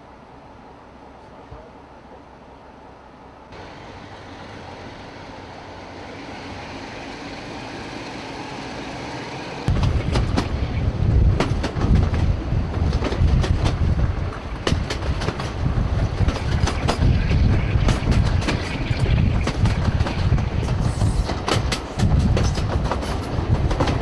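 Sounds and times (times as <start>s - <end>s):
diesel train running: 0.0s - 24.0s
wheels clicking over rail joints: 9.3s - 24.0s
wind buffeting microphone: 9.6s - 24.0s.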